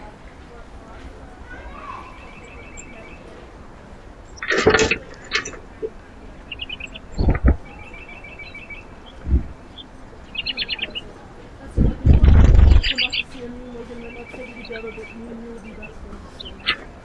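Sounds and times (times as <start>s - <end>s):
small birds chirping: 0.0s - 17.0s
short low knocks: 7.2s - 7.7s, 9.2s - 9.6s.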